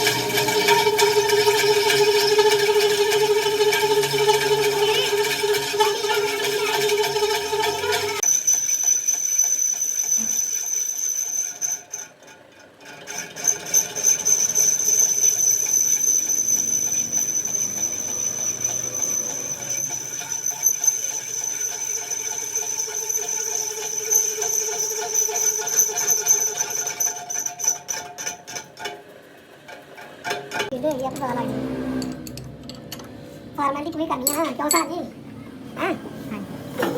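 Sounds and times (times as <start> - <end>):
power tool squealing on metal: 0.0 - 28.9.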